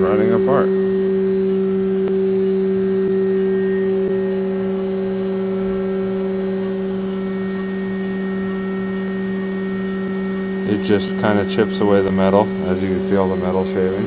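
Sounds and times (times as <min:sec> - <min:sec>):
milling machine humming: 0:00.0 - 0:14.0.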